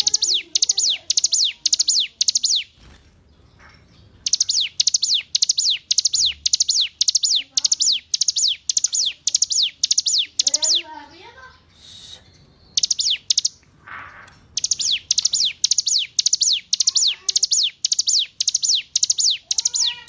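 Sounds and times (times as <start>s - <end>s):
bird singing high falling notes: 4.2s - 10.9s, 14.6s - 20.0s.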